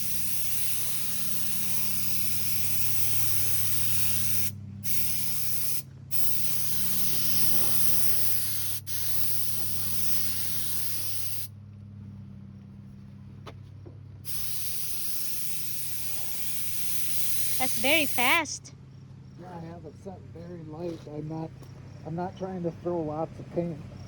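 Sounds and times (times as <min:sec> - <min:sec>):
paint spray gun hissing: 0:00.0 - 0:11.5, 0:14.3 - 0:18.4.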